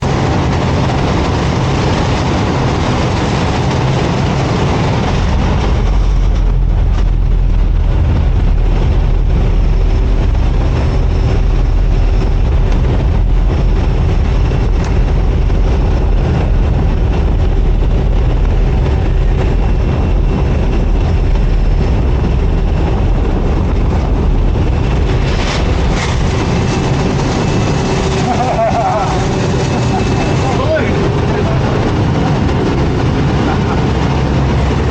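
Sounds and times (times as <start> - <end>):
airplane engine droning: 0.0 - 34.9
wind rushing: 0.0 - 34.9.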